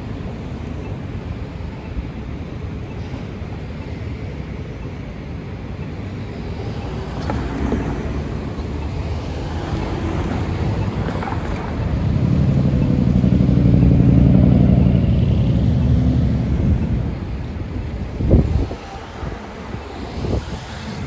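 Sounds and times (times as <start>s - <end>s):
road traffic rumble: 0.0s - 21.0s
wind buffeting microphone: 7.2s - 21.0s.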